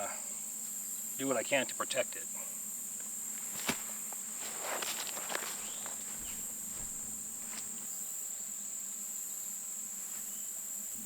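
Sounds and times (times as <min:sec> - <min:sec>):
insect chorus: 0:00.0 - 0:11.0
rustles: 0:02.6 - 0:08.0, 0:09.8 - 0:11.0.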